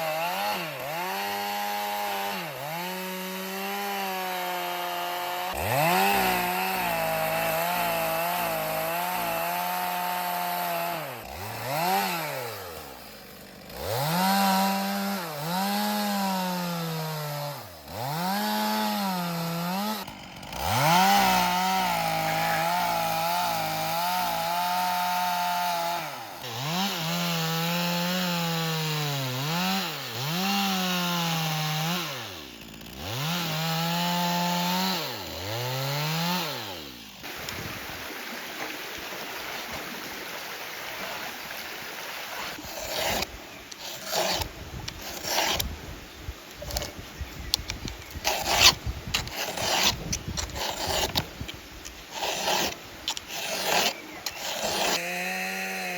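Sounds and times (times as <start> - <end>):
chainsaw running at high revs: 0.0 - 37.5, 42.5 - 45.7, 47.6 - 55.9
scraping and rubbing: 42.3 - 45.8, 47.6 - 55.0.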